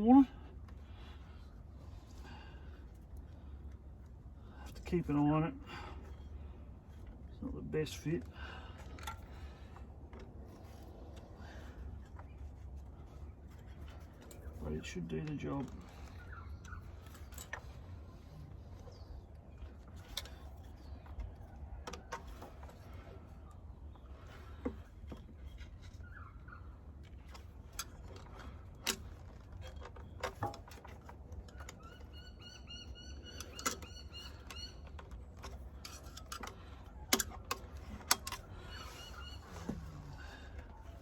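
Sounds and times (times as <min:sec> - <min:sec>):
low steady rumble: 0:00.0 - 0:41.0
bird calling: 0:14.6 - 0:19.2, 0:25.9 - 0:26.9, 0:31.5 - 0:41.0
hand tools clicking and knocking: 0:26.9 - 0:32.3, 0:33.2 - 0:41.0.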